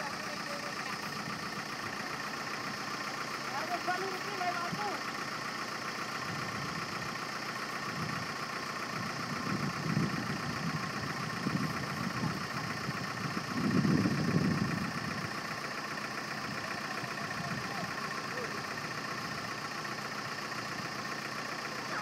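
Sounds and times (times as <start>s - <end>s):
low engine rumbling surges: 0.0s - 22.0s
truck engine running: 0.0s - 22.0s.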